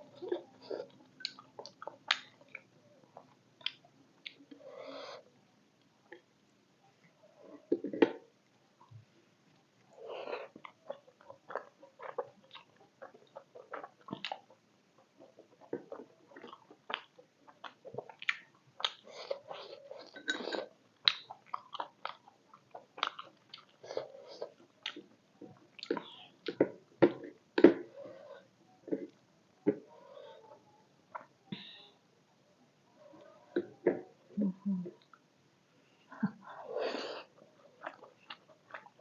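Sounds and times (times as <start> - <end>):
person chewing food: 0.0 - 4.6, 10.1 - 31.3, 37.2 - 39.0.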